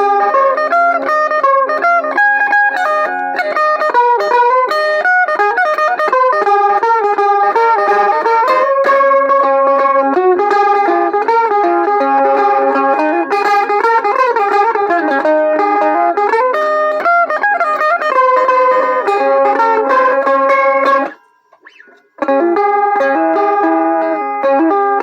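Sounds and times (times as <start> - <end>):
electric mandolin melody: 0.0 - 25.0.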